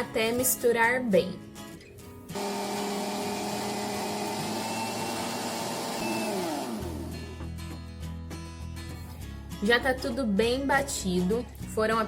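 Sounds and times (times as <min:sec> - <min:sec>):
blender running: 0:02.3 - 0:07.4.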